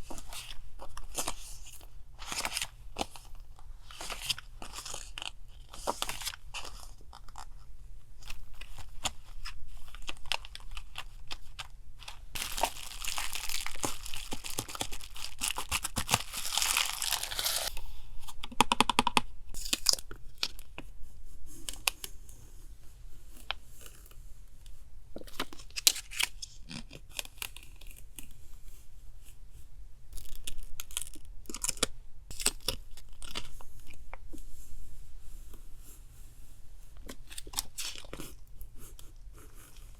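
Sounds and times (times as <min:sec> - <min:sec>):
paper rustling and crinkling: 0:00.0 - 0:17.8
paper tearing: 0:14.6 - 0:17.7.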